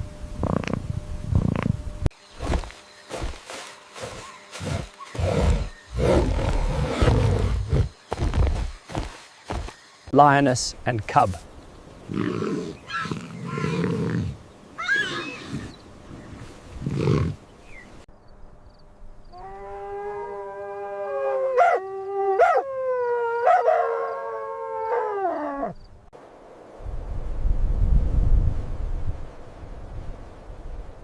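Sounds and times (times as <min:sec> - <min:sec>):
lions growling and grunting: 0:04.0 - 0:08.7, 0:12.1 - 0:17.4
animal howling: 0:14.8 - 0:15.8, 0:19.4 - 0:25.8.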